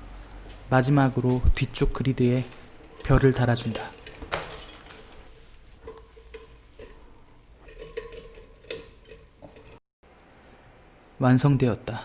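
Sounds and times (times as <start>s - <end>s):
glass pieces clicking and scraping: 2.3s - 9.8s.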